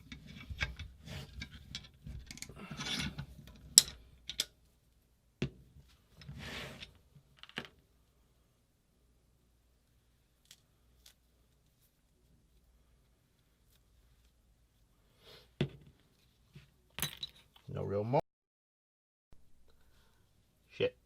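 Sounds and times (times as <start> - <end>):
metal parts scraping: 0.0 - 4.4.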